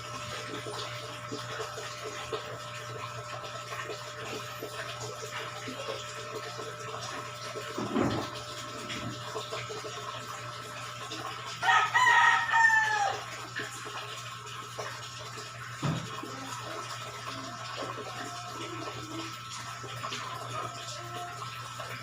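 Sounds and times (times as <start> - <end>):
rooster crowing: 11.6 - 13.3.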